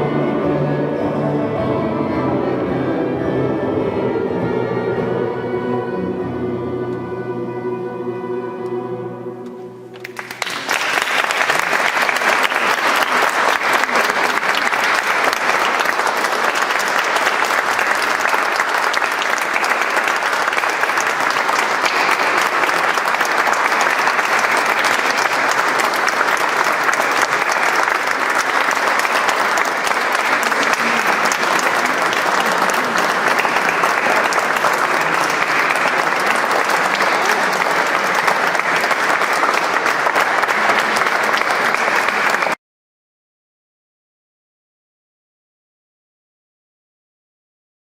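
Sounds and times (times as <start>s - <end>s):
choir singing chord: 0.0s - 9.9s
audience applauding: 9.9s - 42.6s.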